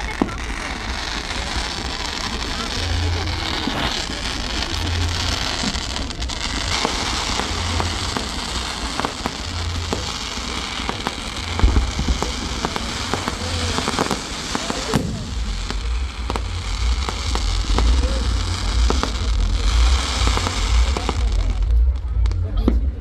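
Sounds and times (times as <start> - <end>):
steady hiss: 0.0 - 22.1
fireworks bangs: 0.0 - 23.0
fireworks crackling and popping: 0.0 - 23.0.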